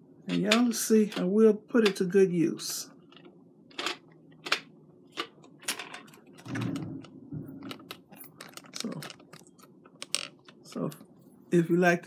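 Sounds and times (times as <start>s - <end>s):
hard plastic parts clicking: 3.1s - 11.1s.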